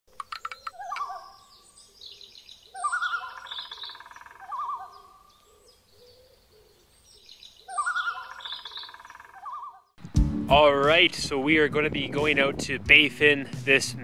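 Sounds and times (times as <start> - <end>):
warbling bird call: 0.2 - 1.6, 2.7 - 6.4, 7.6 - 9.9
high bird chirping: 0.2 - 10.0.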